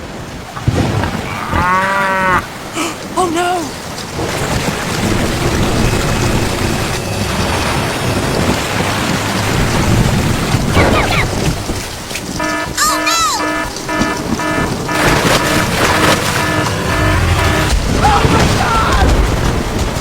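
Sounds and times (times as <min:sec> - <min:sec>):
high-pitched voice-like calls: 0:10.8 - 0:11.5, 0:12.4 - 0:14.6
brief gliding tones: 0:12.4 - 0:17.9
loud rushing noise with rumbling: 0:13.6 - 0:20.0.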